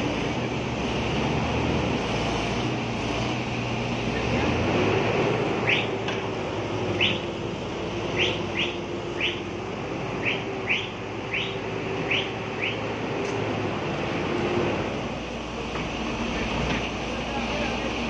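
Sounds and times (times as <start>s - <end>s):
diesel machinery running: 0.0s - 18.0s
bird chirping: 6.9s - 7.3s, 8.1s - 9.4s, 10.2s - 12.9s.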